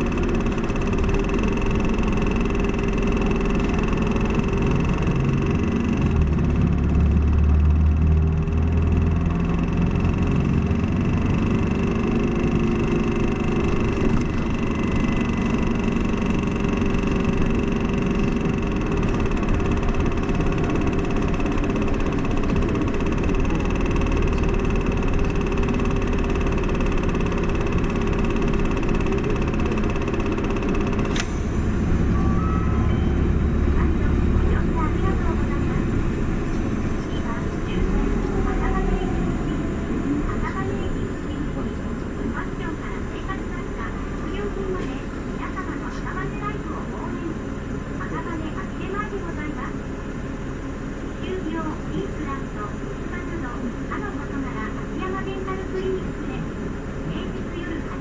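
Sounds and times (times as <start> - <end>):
bus engine drone: 0.0 - 58.0
high whine: 31.1 - 42.4.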